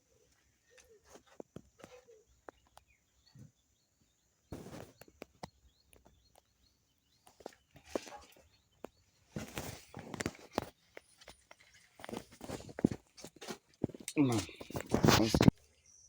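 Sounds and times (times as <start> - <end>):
faint bird chirps: 0.0 - 12.7
brief rustle: 9.4 - 15.6.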